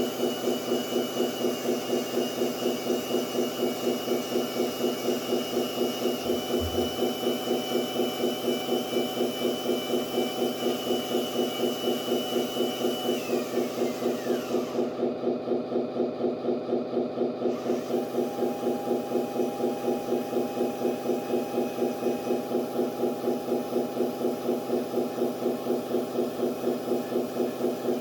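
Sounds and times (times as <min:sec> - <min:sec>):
truck engine idling through small speaker: 0:21.9 - 0:28.0.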